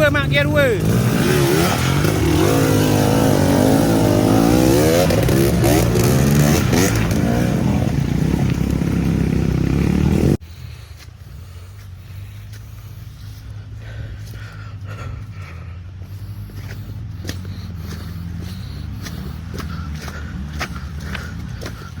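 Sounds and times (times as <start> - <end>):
motorcycle engine revving: 0.0 - 10.4, 16.0 - 22.0
low engine hum: 0.6 - 22.0.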